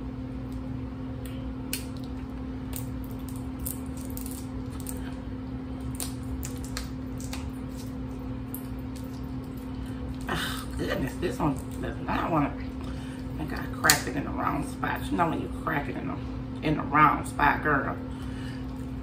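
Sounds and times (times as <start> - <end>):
steady low hum: 0.0 - 19.0
crab shells cracking: 1.2 - 10.8.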